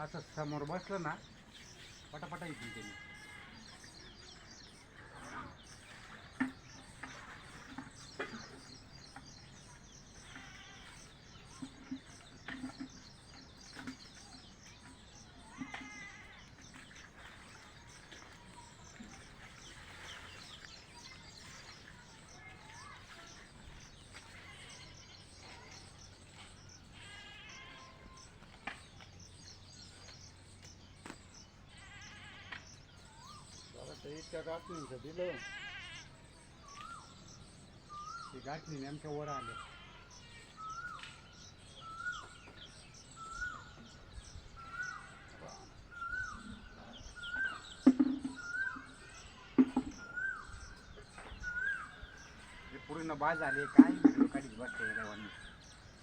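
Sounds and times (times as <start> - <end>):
birds chirping: 0.0 - 56.0
goats or sheep bleating: 2.2 - 4.0, 10.1 - 12.0, 15.4 - 17.3, 24.0 - 25.9, 26.8 - 28.4, 31.6 - 32.8, 34.2 - 36.2, 39.4 - 40.9, 51.0 - 55.7.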